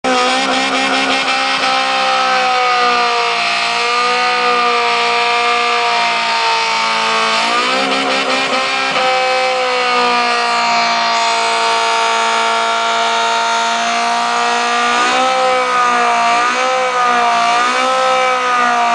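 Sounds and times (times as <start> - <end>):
car engine revving: 0.0 - 18.9.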